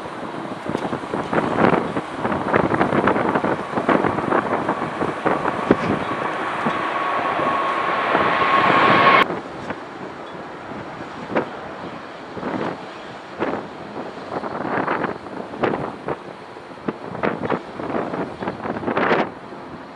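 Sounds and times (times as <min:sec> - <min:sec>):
jet engines whining: 0:00.0 - 0:09.2
wind buffeting microphone: 0:00.0 - 0:19.8.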